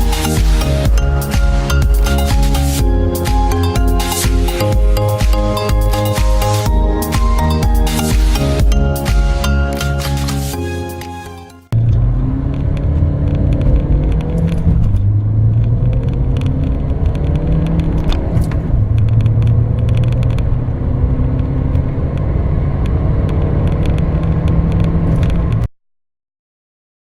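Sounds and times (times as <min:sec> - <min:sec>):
car engine accelerating hard: 0:11.7 - 0:25.7.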